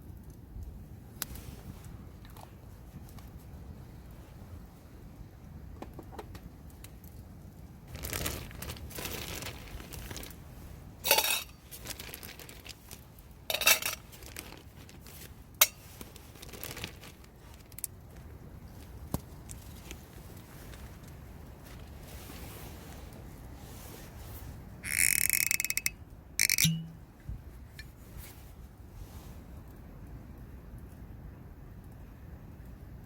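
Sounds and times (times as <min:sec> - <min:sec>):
rustle: 0:00.0 - 0:33.0
tableware clinking: 0:26.6 - 0:27.0.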